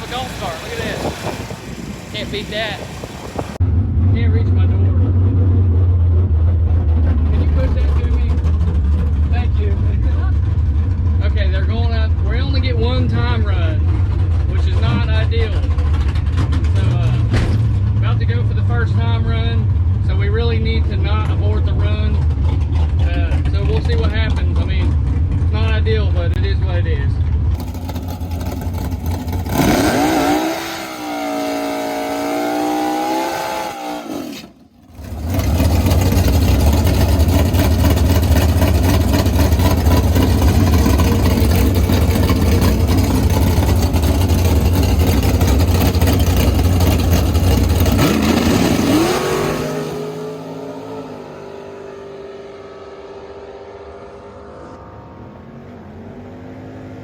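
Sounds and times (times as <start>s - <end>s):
race car engine revving: 27.3s - 57.0s.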